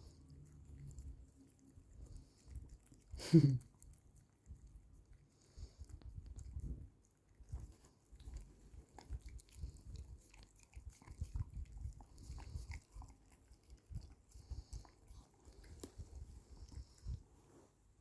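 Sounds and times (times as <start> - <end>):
pet licking and chewing: 0.0 - 18.0.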